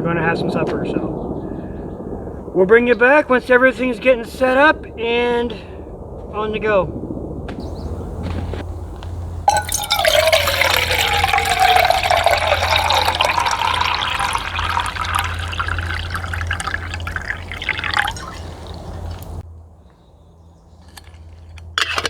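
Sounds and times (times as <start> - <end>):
water pouring into container: 9.5 - 19.4.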